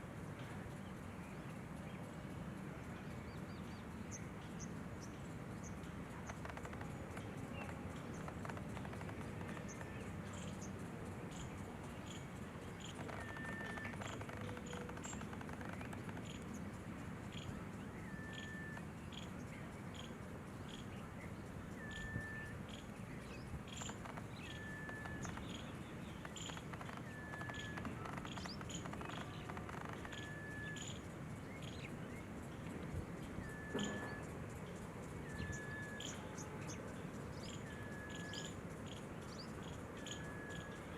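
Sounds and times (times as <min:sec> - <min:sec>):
bird whistled note: 0:33.5 - 0:34.2.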